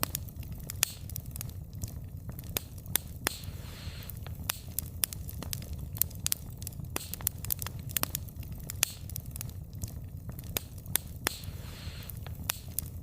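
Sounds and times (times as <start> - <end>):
burning logs crackling and popping: 0.0 - 13.0
low rumble of flames: 0.0 - 13.0
brief hiss: 3.3 - 4.2, 11.3 - 12.2.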